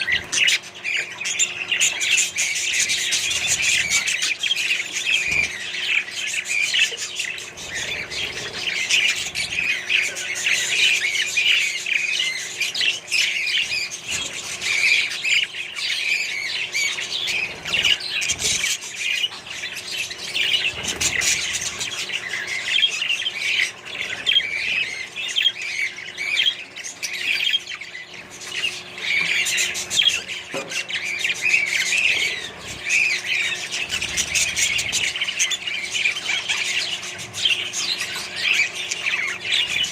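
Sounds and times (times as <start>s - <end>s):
parrots chattering: 0.0s - 39.9s.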